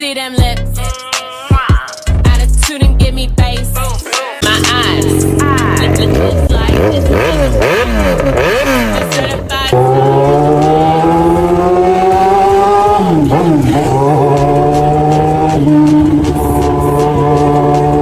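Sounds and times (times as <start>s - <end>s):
motorcycle engine revving: 4.4s - 18.0s.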